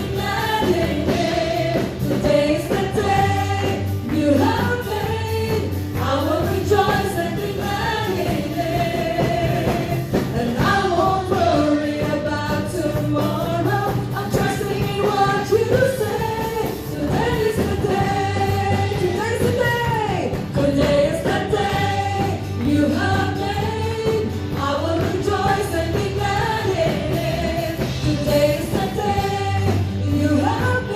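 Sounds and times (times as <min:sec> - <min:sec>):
instrumental backing with bass: 0:00.0 - 0:30.9
voices singing a worship song: 0:00.0 - 0:30.9.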